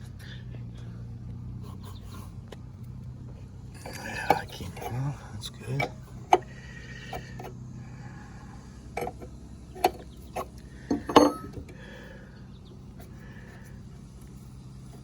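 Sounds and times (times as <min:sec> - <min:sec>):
low hum: 0:00.0 - 0:15.0
metal tools clanking: 0:03.8 - 0:07.6, 0:08.9 - 0:11.8.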